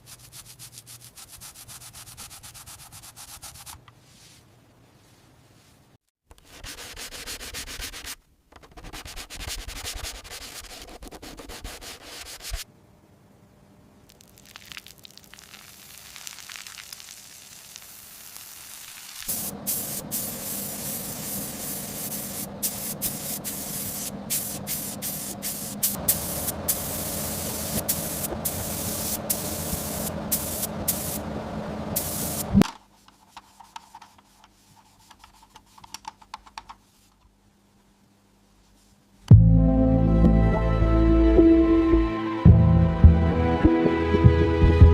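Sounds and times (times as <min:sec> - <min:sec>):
steady hiss: 0:14.2 - 0:31.2, 0:32.0 - 0:33.1.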